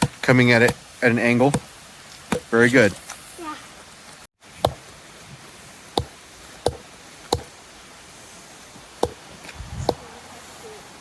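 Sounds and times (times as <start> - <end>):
axe striking a log: 0.0 - 0.9, 1.5 - 1.7, 2.3 - 2.5, 4.6 - 4.9, 6.0 - 7.5, 9.0 - 9.2.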